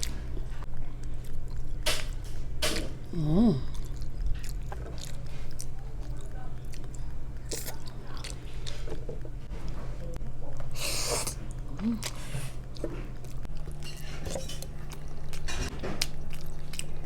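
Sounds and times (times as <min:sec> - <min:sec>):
person humming mmm: 0:03.1 - 0:03.9
wet chewing and mouth smacks: 0:03.6 - 0:08.9.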